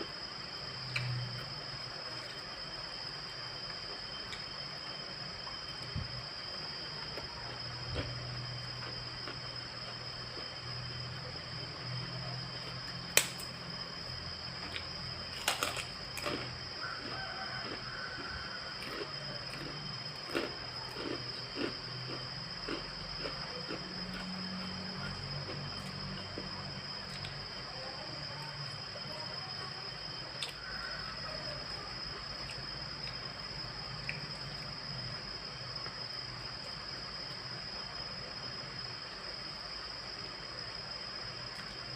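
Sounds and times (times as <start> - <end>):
eating clicks and crunches: 7.0 - 10.5, 12.6 - 13.6, 14.6 - 24.8, 25.4 - 27.6, 30.3 - 30.8, 33.9 - 34.7
wet chewing and mouth sounds: 14.6 - 24.3.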